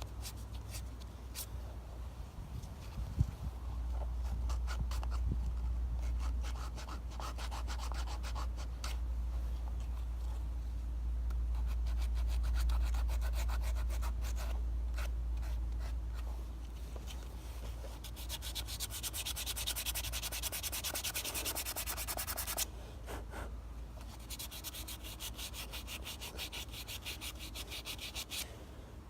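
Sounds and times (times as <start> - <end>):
sandpaper rubbing on wood: 6.0 - 8.7, 17.9 - 22.7, 24.1 - 28.5.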